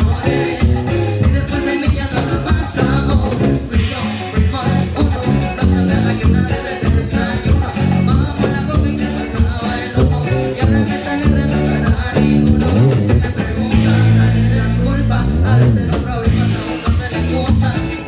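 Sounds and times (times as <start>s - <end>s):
latin dance music: 0.0s - 18.0s
sliding low bass tones: 4.6s - 9.2s, 10.0s - 16.7s.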